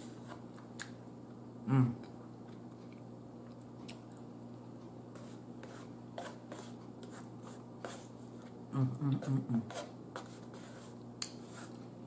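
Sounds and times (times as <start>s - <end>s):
low steady hum: 0.0s - 12.0s
faint chewing: 2.0s - 5.3s.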